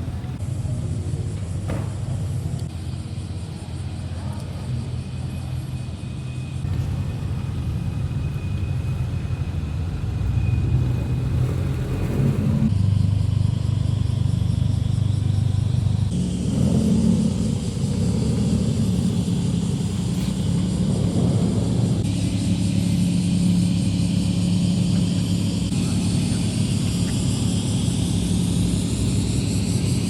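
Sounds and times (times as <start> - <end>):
car exhausts rumbling: 6.6 - 30.0.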